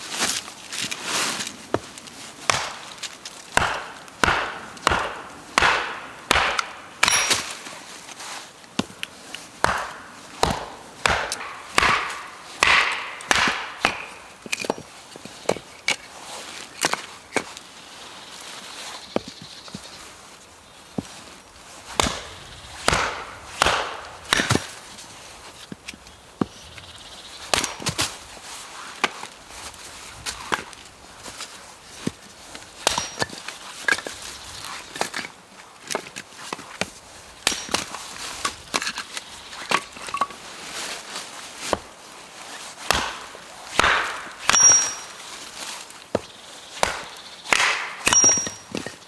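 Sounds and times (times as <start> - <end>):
blade chopping wood: 2.5 - 7.8, 8.8 - 14.9, 21.9 - 25.0, 27.5 - 28.1, 32.8 - 34.1, 36.8 - 40.3, 42.8 - 45.4, 46.1 - 49.0.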